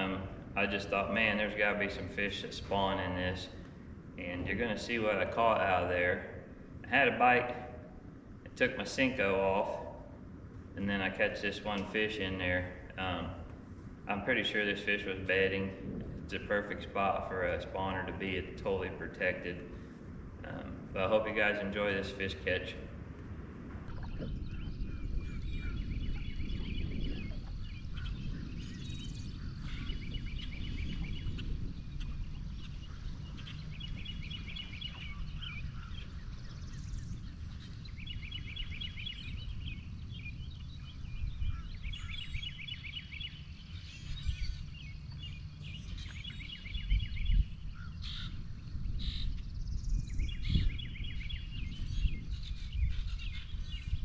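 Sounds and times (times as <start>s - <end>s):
steady low rumble: 0.0s - 54.0s
songbird trilling: 23.9s - 54.0s.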